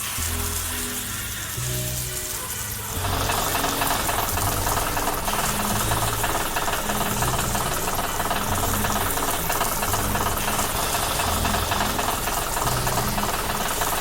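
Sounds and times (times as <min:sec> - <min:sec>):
diesel engine knocking rattle: 0:03.0 - 0:14.0.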